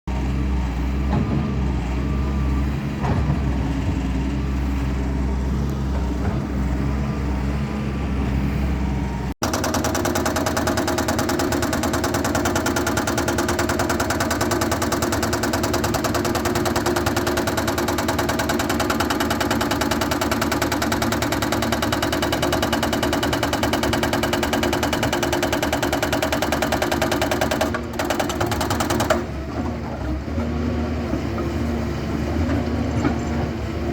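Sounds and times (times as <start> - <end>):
heavy machine engine humming: 0.1 - 33.9
fast machine clatter: 9.4 - 29.2.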